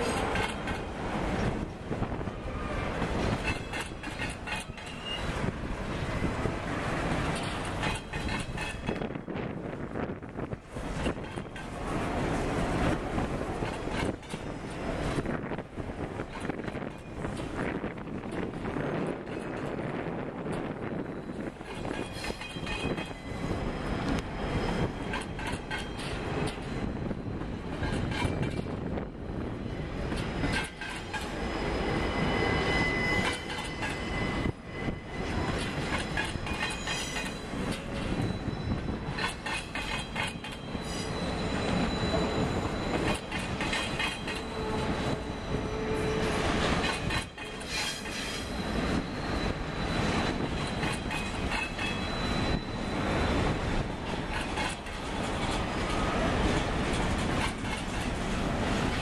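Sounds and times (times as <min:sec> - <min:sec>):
wheels clicking over rail joints: 0:00.0 - 0:01.8, 0:02.9 - 0:06.1, 0:06.9 - 0:09.6, 0:10.5 - 0:23.3, 0:24.0 - 0:29.2, 0:30.0 - 0:31.4, 0:35.2 - 0:45.4, 0:46.0 - 0:53.2, 0:53.8 - 0:59.0
freight train rumble: 0:00.0 - 0:59.0
wheel flange squeal: 0:02.6 - 0:05.5, 0:29.7 - 0:56.6.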